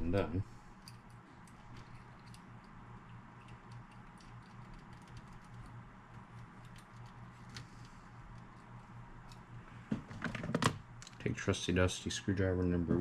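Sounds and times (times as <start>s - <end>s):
low steady hum: 0.0s - 13.0s
small parts clicking: 0.8s - 9.4s.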